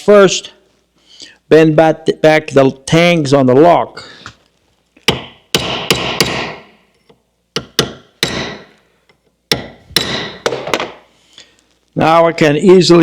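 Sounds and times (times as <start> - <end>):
hammer hitting metal: 5.1 - 6.7, 7.6 - 8.8, 9.5 - 11.0.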